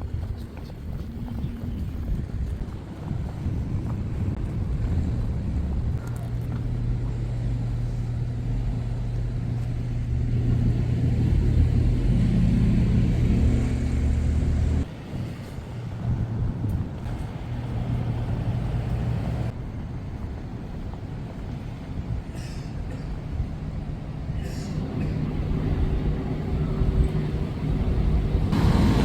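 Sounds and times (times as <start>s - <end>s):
vehicle engine humming: 0.0s - 14.9s, 17.0s - 19.6s, 23.6s - 29.0s.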